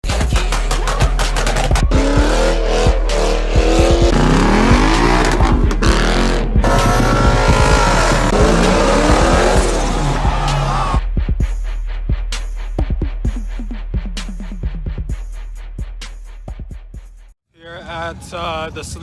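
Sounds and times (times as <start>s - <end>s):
car engines revving: 0.0s - 11.0s
steady low bass: 0.0s - 17.2s.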